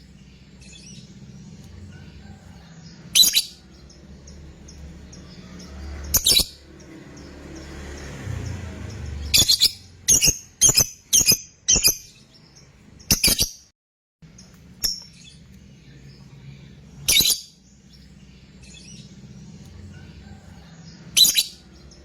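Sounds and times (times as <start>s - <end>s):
lovebird shrill calls: 3.1s - 3.6s, 6.1s - 6.6s, 9.2s - 12.2s, 17.0s - 17.6s.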